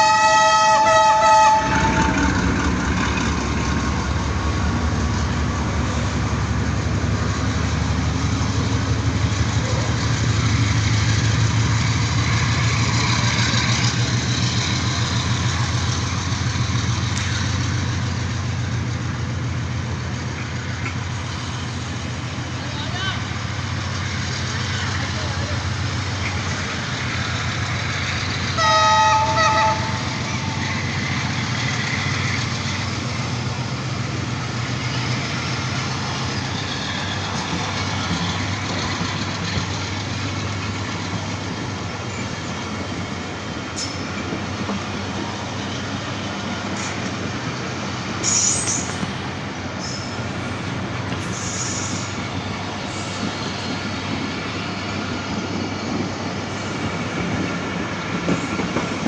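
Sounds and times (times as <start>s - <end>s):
locomotive horn blast: 0.0s - 2.4s, 28.6s - 30.6s
locomotive engine running: 0.0s - 59.0s
train wheels clattering on rails: 1.6s - 59.0s
sharp metallic screech: 48.2s - 49.0s, 51.2s - 52.2s.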